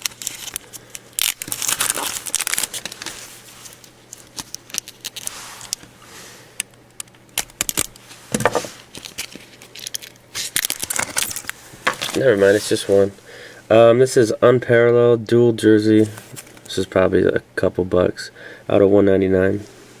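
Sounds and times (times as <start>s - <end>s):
packaging tearing: 0.0s - 5.8s, 7.3s - 8.0s, 8.8s - 12.2s
paper and plastic crinkling: 0.0s - 5.9s, 7.3s - 13.0s.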